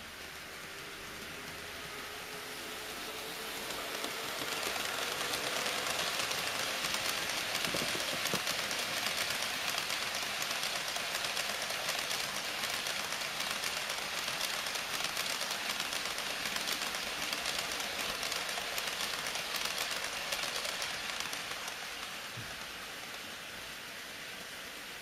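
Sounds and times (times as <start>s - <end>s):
model train wheels rattling on rail: 0.0s - 25.0s.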